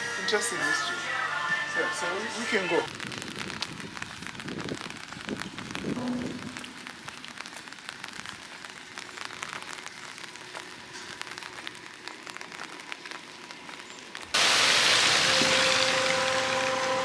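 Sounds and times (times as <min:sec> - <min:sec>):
rain pattering: 0:02.0 - 0:17.0
loud steady hiss: 0:14.4 - 0:17.0.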